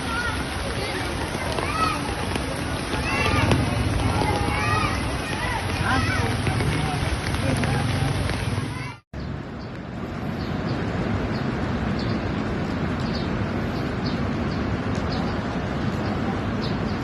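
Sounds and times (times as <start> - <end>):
floodwater rushing: 0.0 - 9.0.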